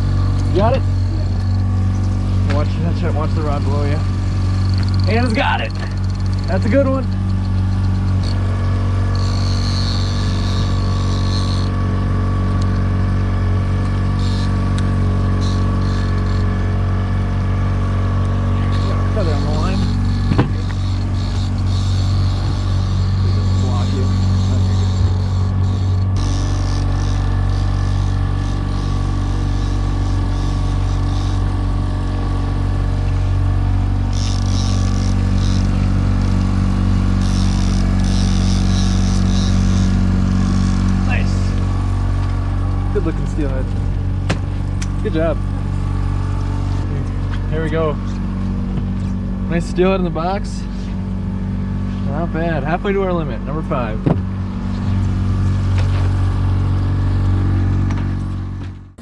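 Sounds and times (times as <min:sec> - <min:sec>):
thin high whine: 0:00.0 - 0:12.3, 0:18.3 - 0:44.2
outboard motor running: 0:00.0 - 0:59.0.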